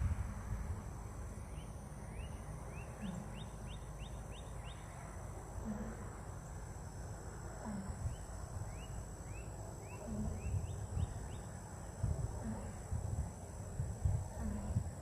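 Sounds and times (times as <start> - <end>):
wind rumbling on microphone: 0.0 - 1.5, 7.8 - 15.0
high insect drone: 0.0 - 15.0.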